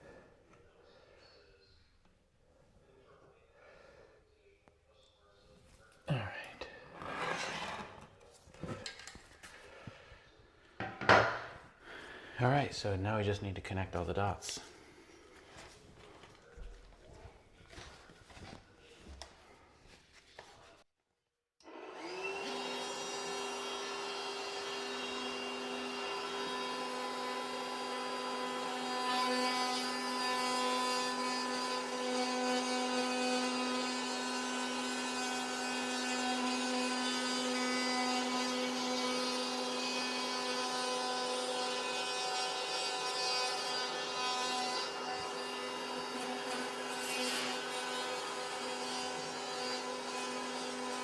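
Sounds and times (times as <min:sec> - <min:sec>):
power tool cutting drywall: 0:07.0 - 0:08.1, 0:21.6 - 0:51.0.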